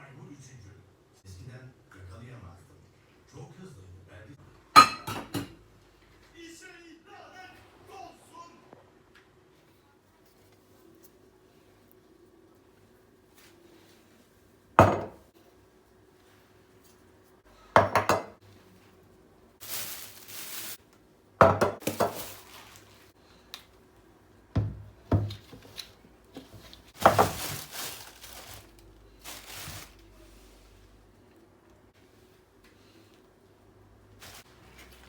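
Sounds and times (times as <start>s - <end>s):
scraping or rustling: 19.6s - 20.8s, 25.4s - 30.8s, 34.2s - 35.0s.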